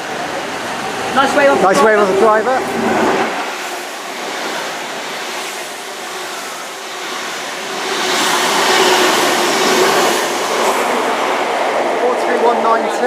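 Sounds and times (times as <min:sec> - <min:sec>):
diesel train engines: 0:00.0 - 0:13.0
heavy rain: 0:00.0 - 0:13.0
train wheels on rails: 0:00.0 - 0:13.0.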